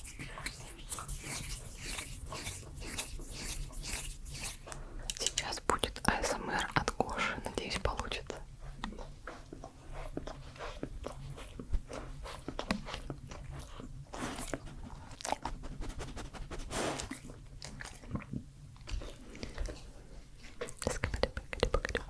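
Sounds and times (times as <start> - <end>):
wet mouth clicks and smacks: 20.7 - 22.0.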